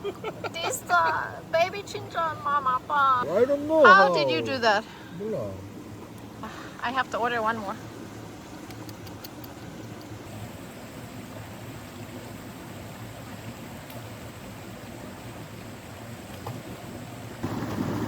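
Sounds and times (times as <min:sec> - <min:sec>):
stream flowing: 0:00.0 - 0:18.0
faint ticks: 0:08.6 - 0:10.2, 0:13.8 - 0:14.1.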